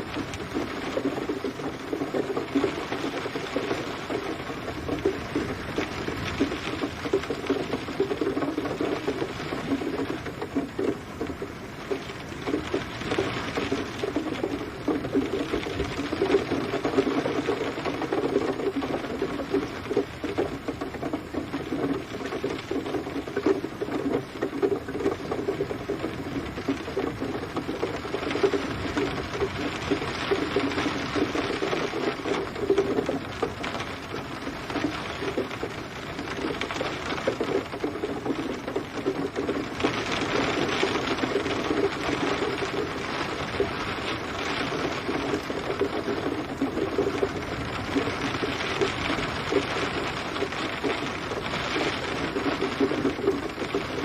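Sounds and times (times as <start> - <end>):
rain pattering on a surface: 0.0 - 54.0.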